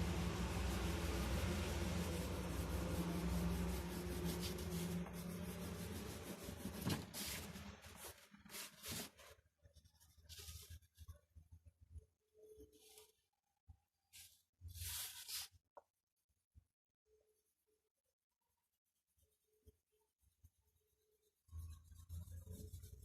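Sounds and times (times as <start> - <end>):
steady low hum: 0.0 - 8.8
drawing tool scratching paper: 2.1 - 9.2.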